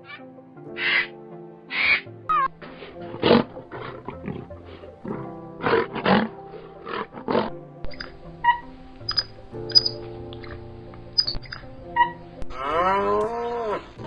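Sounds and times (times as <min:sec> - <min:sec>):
background music: 0:00.0 - 0:14.0
animal roars and growls: 0:12.0 - 0:14.0.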